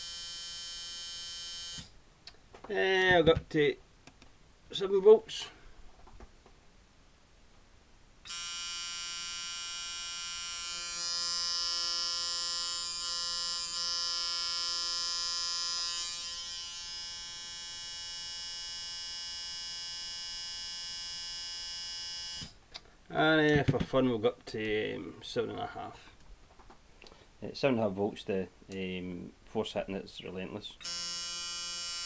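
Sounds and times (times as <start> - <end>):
tattoo machine buzzing: 0.0 - 1.9, 8.3 - 22.5, 30.8 - 32.0.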